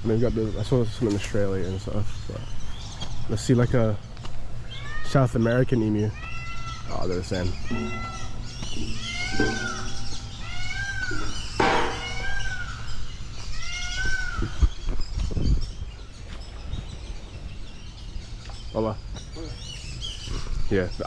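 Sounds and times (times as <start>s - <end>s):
bird crying: 4.6s - 16.6s, 17.2s - 21.0s.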